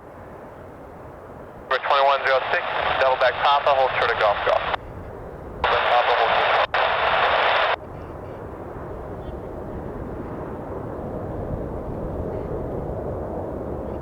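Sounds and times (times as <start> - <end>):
jet airliner rumble: 0.7 - 14.0
radio transmission on scanner: 1.7 - 4.8, 5.6 - 7.8.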